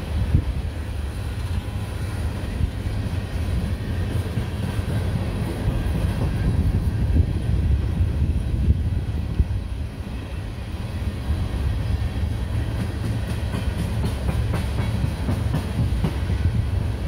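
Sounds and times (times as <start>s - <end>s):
train wheels rumbling on rails: 0.0s - 17.0s
train knocks: 11.3s - 17.0s.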